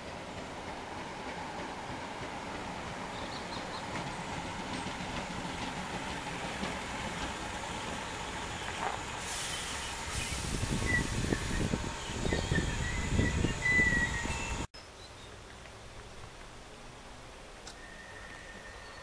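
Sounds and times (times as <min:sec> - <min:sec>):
electric train rumbling: 0:00.0 - 0:14.7
air hiss: 0:09.0 - 0:13.2.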